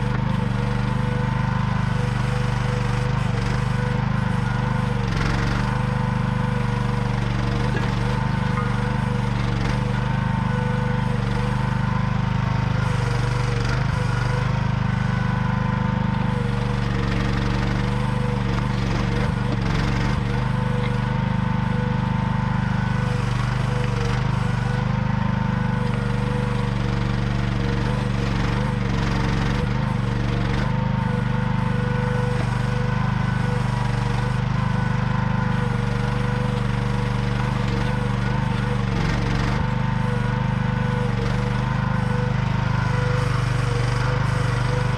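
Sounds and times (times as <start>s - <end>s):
excavator engine running: 0.0s - 44.9s
steady whine: 2.8s - 14.6s.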